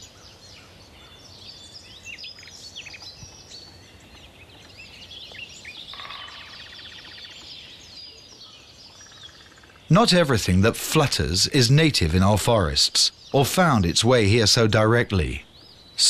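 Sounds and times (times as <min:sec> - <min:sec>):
birds chirping and whistling: 0:00.0 - 0:16.0
dry rattling bird trill: 0:02.2 - 0:09.9.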